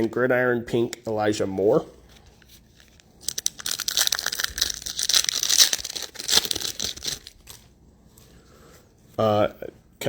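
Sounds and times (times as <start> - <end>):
card pack wrapper torn and crinkled: 2.8 - 7.6.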